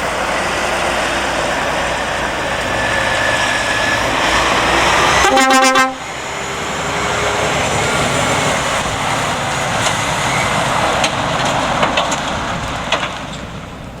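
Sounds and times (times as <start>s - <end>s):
diesel truck engine: 0.0s - 14.0s
truck horn blast: 5.0s - 6.1s
tyres rolling: 6.4s - 14.0s.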